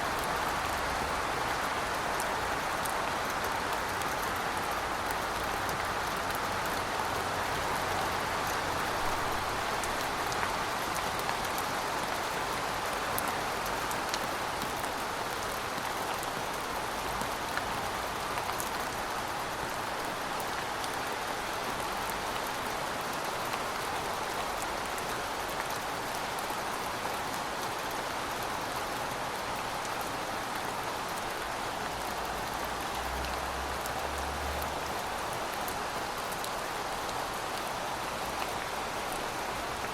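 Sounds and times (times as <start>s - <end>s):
rain falling on pavement: 0.0s - 39.9s.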